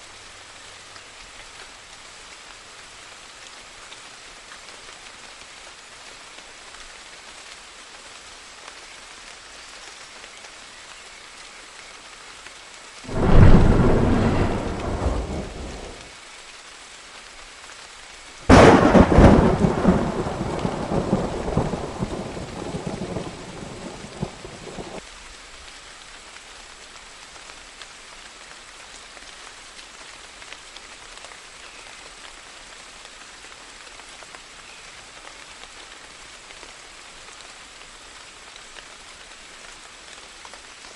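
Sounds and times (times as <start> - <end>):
steady rain falling: 0.0 - 40.9
thunder claps rumbling: 13.1 - 16.1, 18.5 - 25.0.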